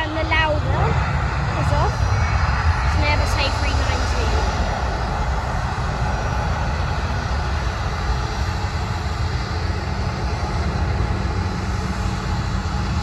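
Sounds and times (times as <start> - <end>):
jet engines at takeoff power: 0.0 - 13.0.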